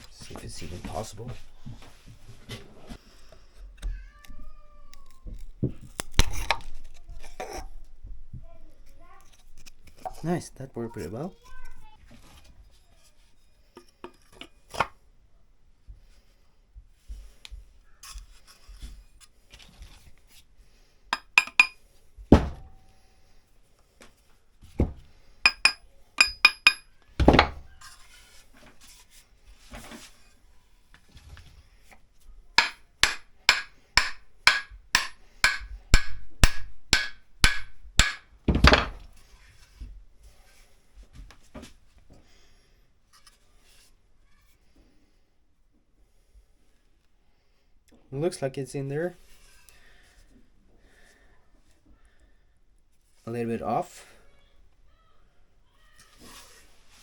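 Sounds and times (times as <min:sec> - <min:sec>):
hammer striking steel axe head: 0:21.2 - 0:21.8, 0:25.5 - 0:26.8, 0:32.6 - 0:38.9
heavy thuds: 0:22.3 - 0:22.8.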